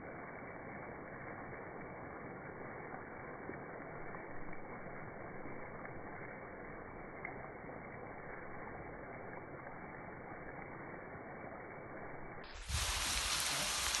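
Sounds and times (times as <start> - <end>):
meat sizzling in frying: 12.1 - 14.0.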